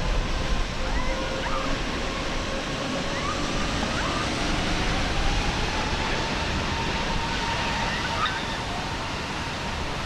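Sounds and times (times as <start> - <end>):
jet engine roar with whine: 0.0 - 10.0.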